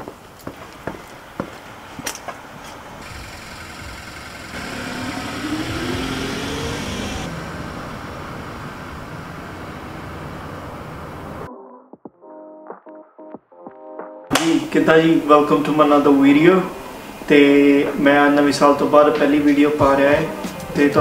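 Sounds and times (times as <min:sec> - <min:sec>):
road noise: 0:00.0 - 0:11.5, 0:14.7 - 0:21.0
car engine accelerating: 0:03.0 - 0:11.5.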